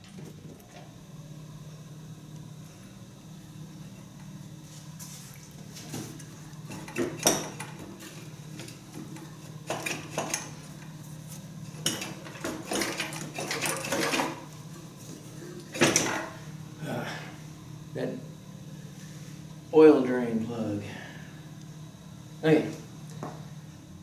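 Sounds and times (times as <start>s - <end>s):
steady low hum: 0.0s - 24.0s
metal tools clinking and clattering: 11.8s - 14.3s.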